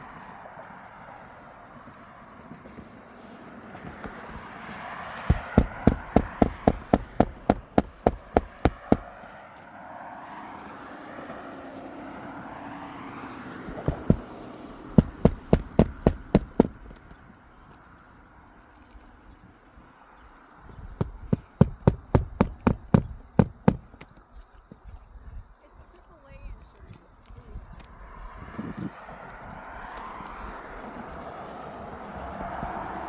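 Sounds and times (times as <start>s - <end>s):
hammer striking roofing nails: 5.2s - 9.2s, 13.7s - 17.1s, 20.8s - 24.2s.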